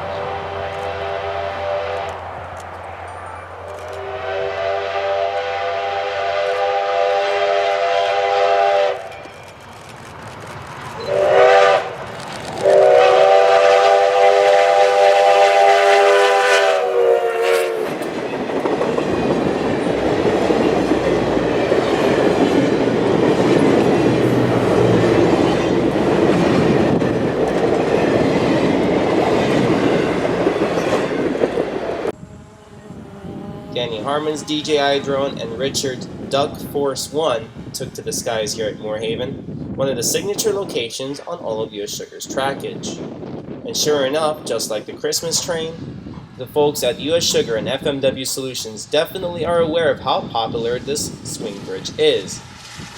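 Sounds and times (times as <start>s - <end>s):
train rolling by: 0.0s - 39.0s, 48.4s - 52.9s
steam locomotive chime whistle: 11.0s - 11.9s.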